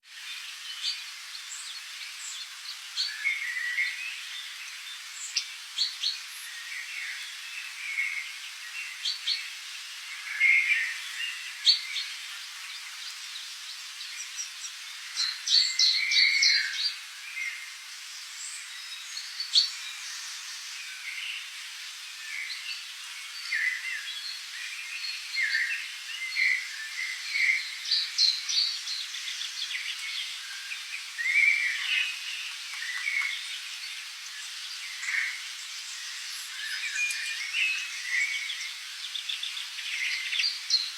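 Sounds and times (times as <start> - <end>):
high background hiss: 0.0 - 40.9
birds chirping and calling: 31.0 - 40.9.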